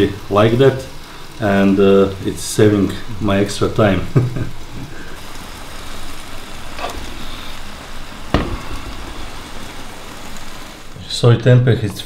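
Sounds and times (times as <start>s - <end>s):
fish sizzling in a pan: 0.0s - 11.0s
knocks: 8.3s - 9.7s.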